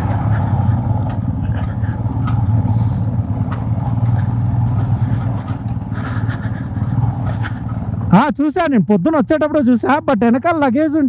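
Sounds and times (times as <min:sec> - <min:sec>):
motorcycle engine cruising: 0:00.0 - 0:08.3
road noise: 0:00.0 - 0:08.4.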